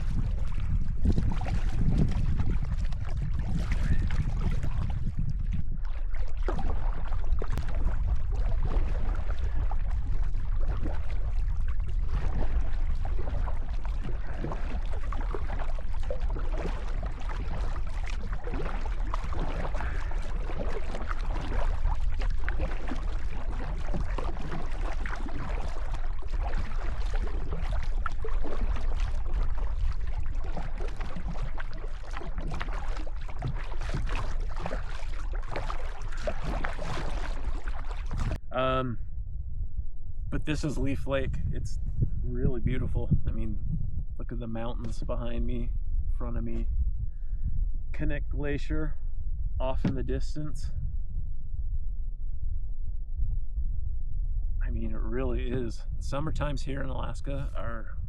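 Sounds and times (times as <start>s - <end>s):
water splashing and lapping: 0.0s - 38.5s
wind rumble on microphone: 0.0s - 58.0s.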